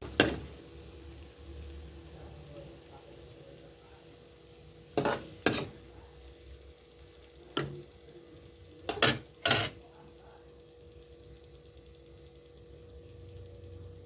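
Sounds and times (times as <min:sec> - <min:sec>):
metal utensil clanking on pan: 0:00.0 - 0:00.5, 0:05.0 - 0:05.8, 0:07.5 - 0:07.9, 0:08.9 - 0:09.8.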